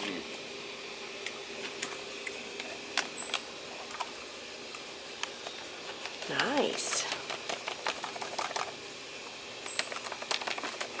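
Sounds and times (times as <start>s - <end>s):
faint steady hum: 0.0s - 11.0s
spoon stirring in foil pouch: 5.4s - 8.8s.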